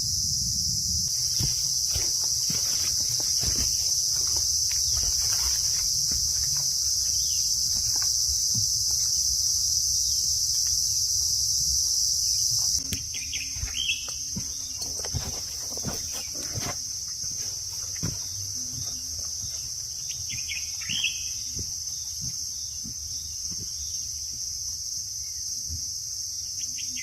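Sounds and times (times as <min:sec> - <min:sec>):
insects trilling: 0:00.0 - 0:27.0
bird chirp: 0:12.8 - 0:16.5, 0:18.2 - 0:24.2.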